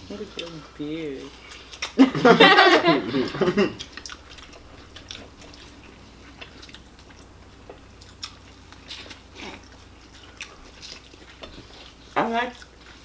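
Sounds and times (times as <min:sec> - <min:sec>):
faint low hum: 0:00.0 - 0:13.0
people chewing: 0:00.0 - 0:13.0
wet mouth clicks: 0:01.4 - 0:02.1, 0:03.2 - 0:12.0.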